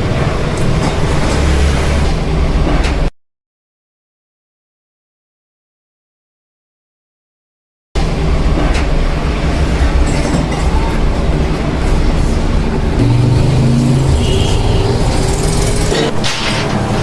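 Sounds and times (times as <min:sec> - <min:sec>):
metalworking machinery rumbling: 0:08.0 - 0:17.0
machinery rattling: 0:09.6 - 0:17.0.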